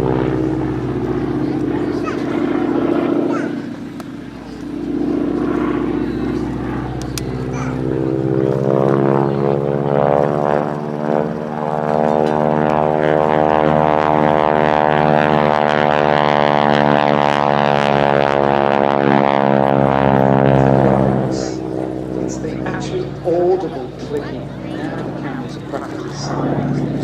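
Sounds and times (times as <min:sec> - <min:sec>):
radial aircraft engine drone: 0:00.0 - 0:27.0.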